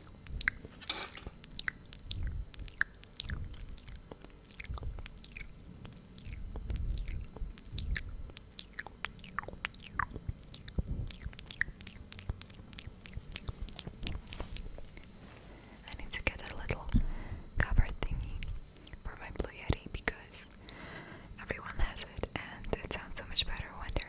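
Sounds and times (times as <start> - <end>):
wet lips smacking and popping: 1.5 - 15.1.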